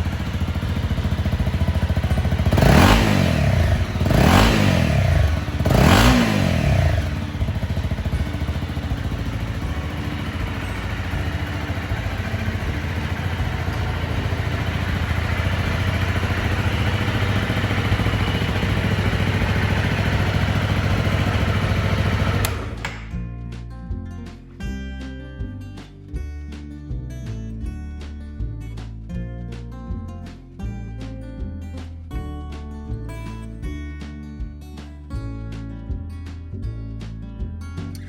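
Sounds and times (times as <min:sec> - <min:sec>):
motorcycle engine revving and idling: 0:00.0 - 0:23.2
acoustic guitar music: 0:00.0 - 0:38.0.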